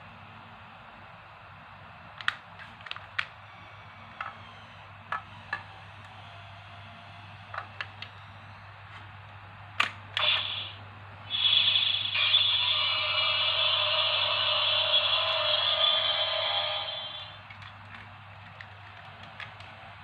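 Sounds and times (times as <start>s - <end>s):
electronic toy sound: 10.2s - 17.4s.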